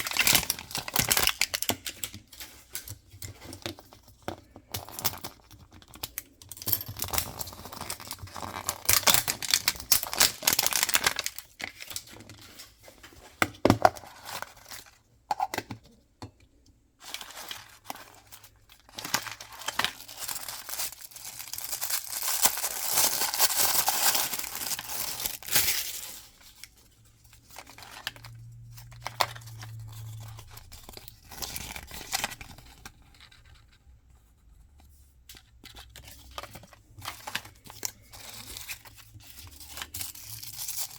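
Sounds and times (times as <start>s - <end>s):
packaging tearing and rustling: 0.0s - 3.3s, 7.3s - 12.8s, 17.0s - 33.4s, 36.0s - 40.9s.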